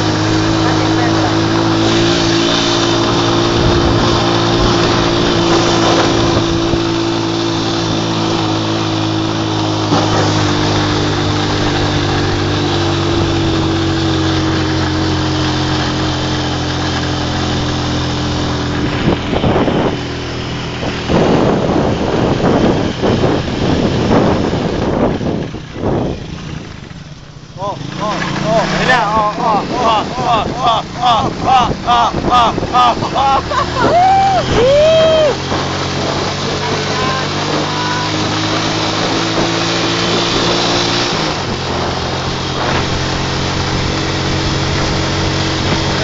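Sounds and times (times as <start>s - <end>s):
tricycle engine running: 0.0s - 46.0s
wind and road noise: 0.0s - 46.0s
wind buffeting microphone: 1.5s - 8.1s, 17.6s - 26.9s, 28.4s - 46.0s.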